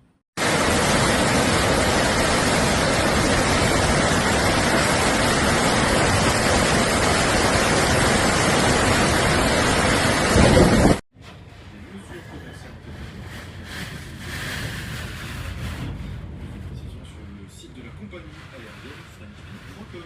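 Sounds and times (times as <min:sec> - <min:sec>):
rain: 0:00.4 - 0:11.0
rushing wind: 0:00.4 - 0:20.0.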